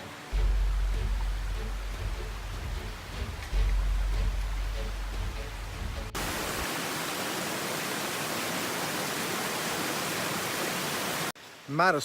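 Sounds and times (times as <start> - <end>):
low rumble: 0.4 - 6.2.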